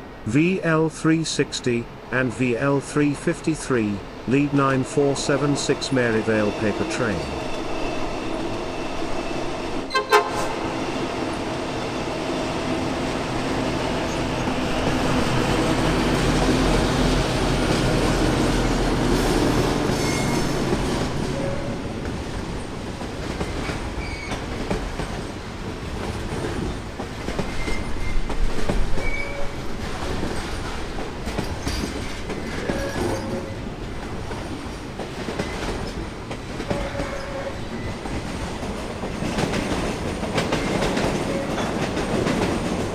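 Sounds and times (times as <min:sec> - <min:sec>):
diesel locomotive engines: 0:00.0 - 0:42.9
wagons clickety-clack over rail joints: 0:15.0 - 0:42.9.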